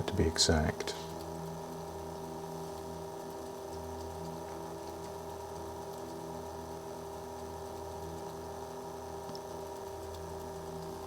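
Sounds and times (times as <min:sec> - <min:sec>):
faint ticks of cutting tool: 0:02.7 - 0:11.0.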